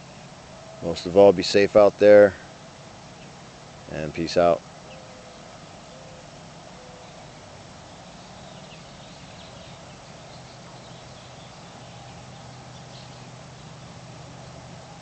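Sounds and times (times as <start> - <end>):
steady low hum: 0.0 - 15.0
faint bird chirps: 4.8 - 14.7.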